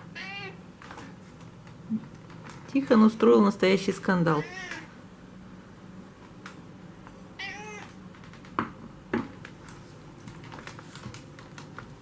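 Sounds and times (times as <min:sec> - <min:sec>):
cat meowing: 0:00.0 - 0:00.6, 0:04.4 - 0:04.9, 0:07.4 - 0:08.0.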